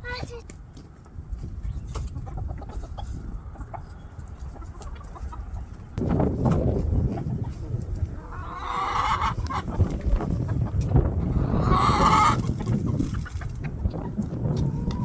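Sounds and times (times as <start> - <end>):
chickens calling: 1.4 - 15.0
loud chicken squawks: 8.2 - 9.7, 11.2 - 12.4.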